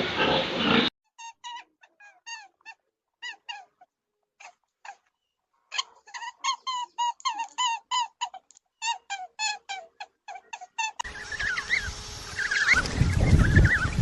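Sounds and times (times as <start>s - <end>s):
animal squeaky chirps: 5.7s - 14.0s.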